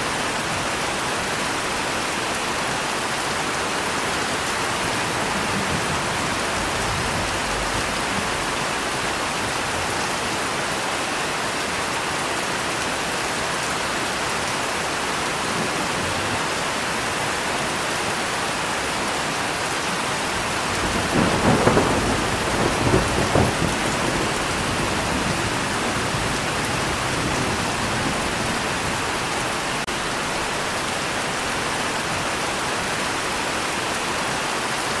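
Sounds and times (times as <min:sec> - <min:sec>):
heavy rain falling: 0:00.0 - 0:35.0
thunder rumbling: 0:04.4 - 0:10.1, 0:20.3 - 0:30.6.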